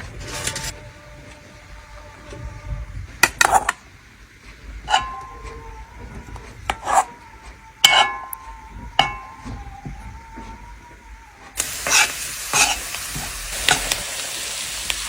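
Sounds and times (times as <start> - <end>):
metal pots and utensils clinking: 0.0 - 1.4, 4.8 - 7.2, 7.8 - 10.5, 11.6 - 14.8.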